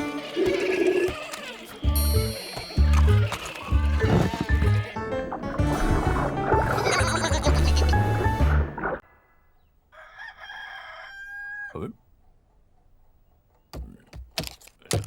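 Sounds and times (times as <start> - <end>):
music: 0.0 - 9.0
rooster crowing: 9.9 - 11.8.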